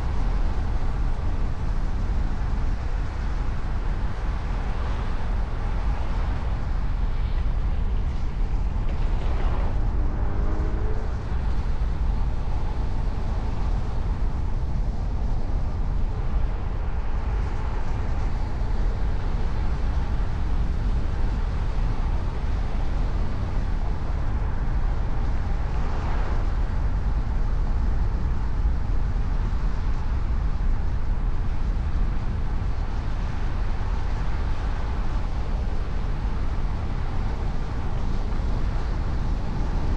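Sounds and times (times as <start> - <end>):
car driving rumble: 0.0 - 28.6.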